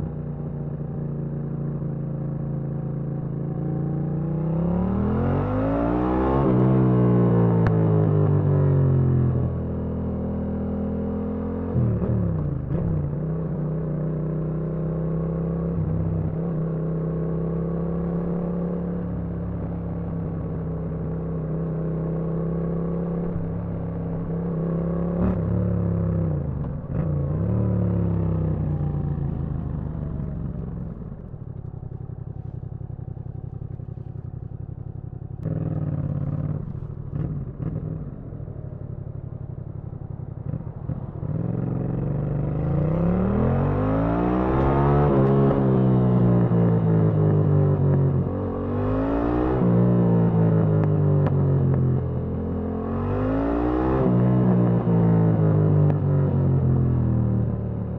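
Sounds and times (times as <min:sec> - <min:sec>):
motorcycle engine running: 0:17.6 - 0:49.0.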